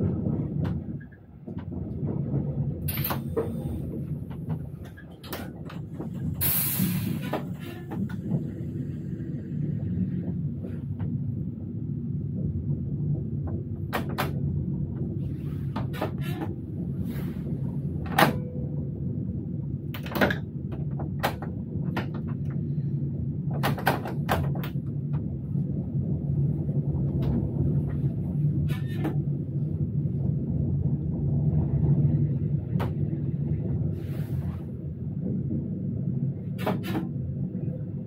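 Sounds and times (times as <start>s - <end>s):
electric train low rumble: 0.0s - 38.0s
sharp clicks and knocks: 2.8s - 6.4s, 13.4s - 15.1s, 19.9s - 22.6s, 23.5s - 25.3s.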